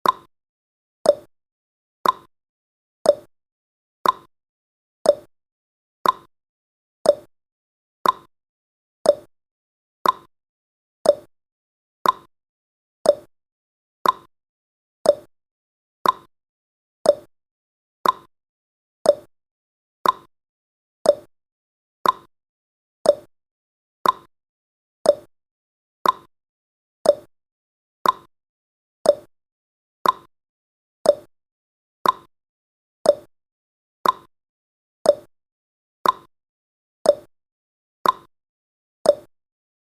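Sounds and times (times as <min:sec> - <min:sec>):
timer ticking: 0:00.0 - 0:00.3, 0:01.1 - 0:01.3, 0:02.0 - 0:02.3, 0:03.1 - 0:03.3, 0:04.0 - 0:04.3, 0:05.1 - 0:05.3, 0:06.0 - 0:06.3, 0:07.0 - 0:07.3, 0:08.0 - 0:08.3, 0:09.0 - 0:09.3, 0:10.0 - 0:10.3, 0:11.0 - 0:11.3, 0:12.0 - 0:12.3, 0:13.0 - 0:13.3, 0:14.0 - 0:14.3, 0:15.0 - 0:15.3, 0:16.0 - 0:16.3, 0:17.0 - 0:17.3, 0:18.0 - 0:18.3, 0:19.0 - 0:19.3, 0:20.0 - 0:20.3, 0:21.0 - 0:21.3, 0:22.0 - 0:22.3, 0:23.0 - 0:23.3, 0:24.0 - 0:24.3, 0:25.0 - 0:25.3, 0:26.0 - 0:26.3, 0:27.0 - 0:27.3, 0:28.0 - 0:28.3, 0:29.0 - 0:29.3, 0:30.0 - 0:30.3, 0:31.0 - 0:31.3, 0:32.0 - 0:32.3, 0:33.0 - 0:33.3, 0:34.0 - 0:34.3, 0:35.1 - 0:35.3, 0:36.0 - 0:36.3, 0:37.1 - 0:37.3, 0:38.0 - 0:38.3, 0:39.1 - 0:39.3.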